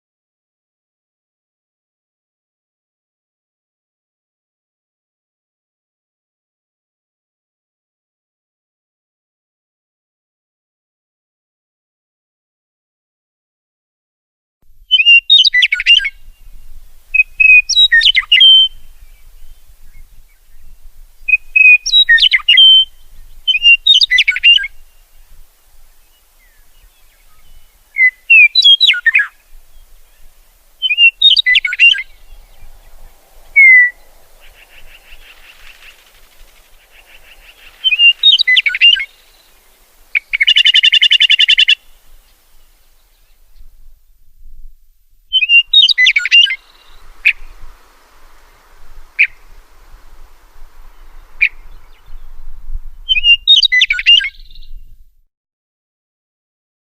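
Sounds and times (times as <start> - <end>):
buzzy bird call: 14.9 - 20.4, 21.3 - 43.5, 45.3 - 54.7
songbird warbling: 14.9 - 43.9, 45.3 - 54.9
harsh rattling bird call: 26.2 - 42.5.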